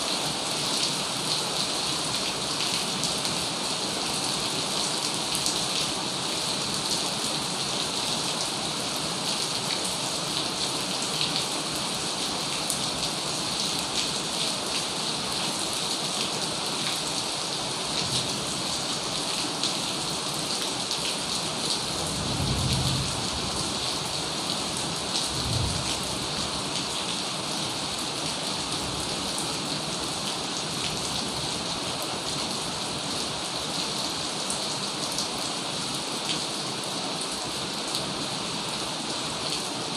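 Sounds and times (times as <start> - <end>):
raindrops pattering on a surface: 0.3 - 35.4
low rumbles of thunder: 22.0 - 23.8, 25.3 - 26.4.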